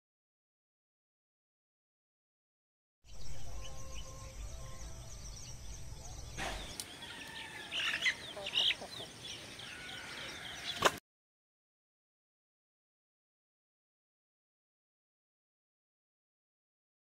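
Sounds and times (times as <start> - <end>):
birds chirping: 3.1 - 11.0.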